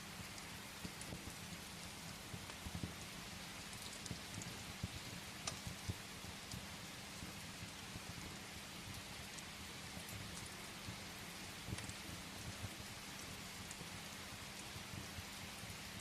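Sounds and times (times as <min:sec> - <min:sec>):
crackling wood fire: 0:00.0 - 0:16.0
rain against a window: 0:00.0 - 0:16.0.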